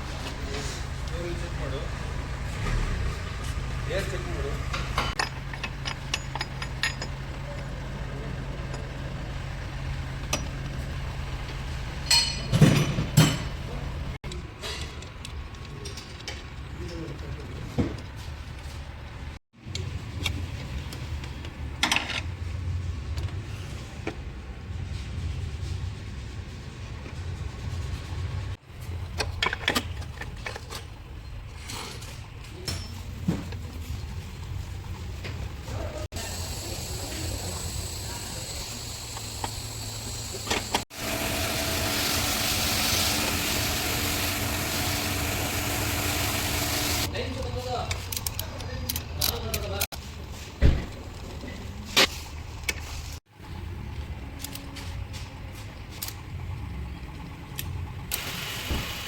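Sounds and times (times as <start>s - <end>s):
car engine idling: 0.0s - 14.2s, 33.6s - 47.6s
engine knocks: 0.0s - 14.2s, 37.6s - 47.1s.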